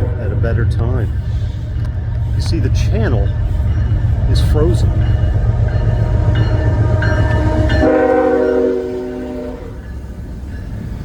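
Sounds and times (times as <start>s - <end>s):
freight train rumbling: 0.0s - 11.0s
locomotive air horn blast: 6.6s - 9.8s.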